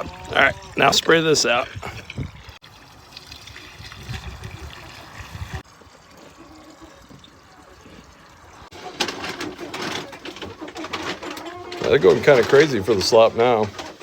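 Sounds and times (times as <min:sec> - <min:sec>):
water running from hose: 0:00.0 - 0:09.0.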